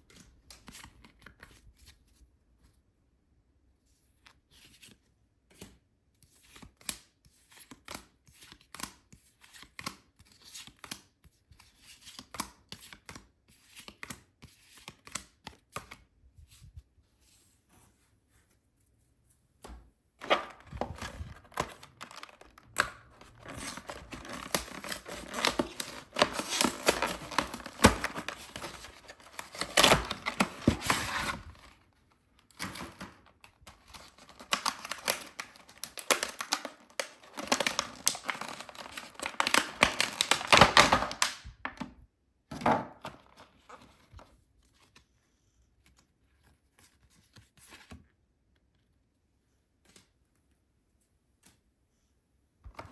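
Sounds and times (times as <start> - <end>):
packaging torn and crinkled: 20.2 - 31.8, 32.5 - 41.4.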